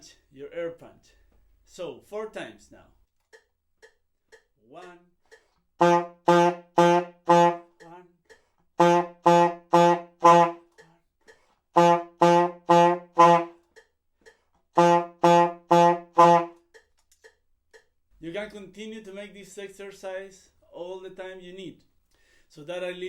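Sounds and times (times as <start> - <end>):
saxophone short punchy notes: 5.8 - 8.0, 8.8 - 10.7, 11.8 - 13.6, 14.8 - 16.6.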